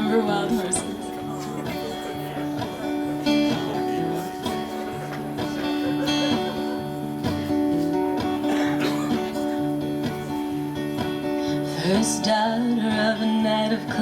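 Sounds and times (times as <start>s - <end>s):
acoustic guitar playing: 0.0s - 14.0s.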